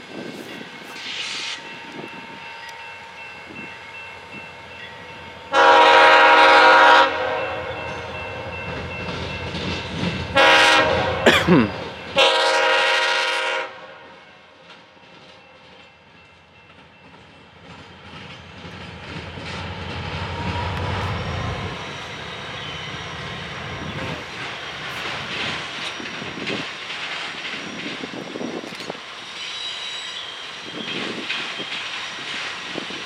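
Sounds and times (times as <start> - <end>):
locomotive horn blasts: 5.5 - 7.9, 10.4 - 14.1
locomotives rumbling past: 17.6 - 29.2.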